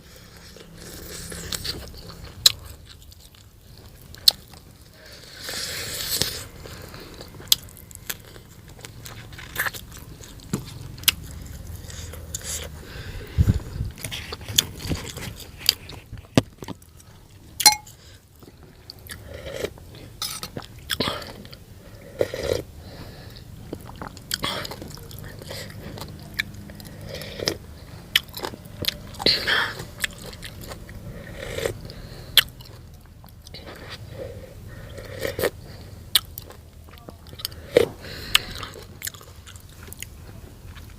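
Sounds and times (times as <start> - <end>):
crunchy bites and chewing: 0.4 - 12.8, 23.6 - 40.9.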